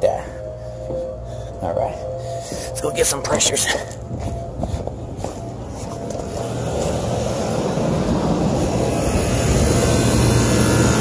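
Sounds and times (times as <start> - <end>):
low hum: 0.0 - 11.0
air conditioner fan rushing: 4.1 - 11.0.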